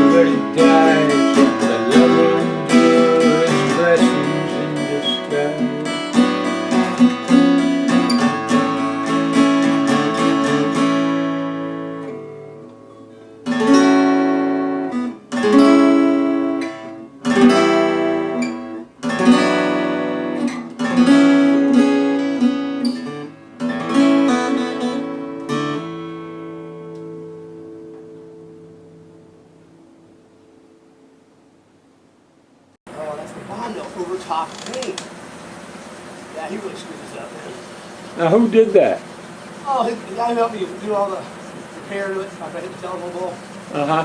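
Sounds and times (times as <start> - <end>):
acoustic guitar strumming chords: 0.0 - 32.0.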